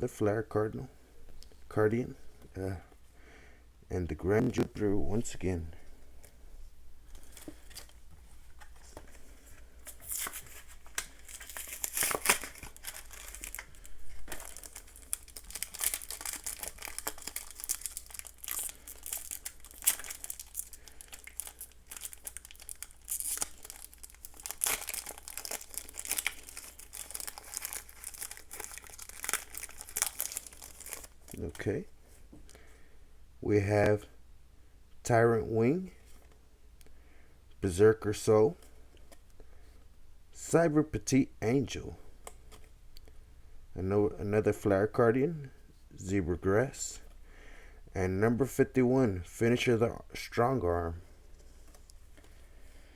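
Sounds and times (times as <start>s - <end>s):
foil wrapper crinkling and tearing: 10.0s - 31.6s.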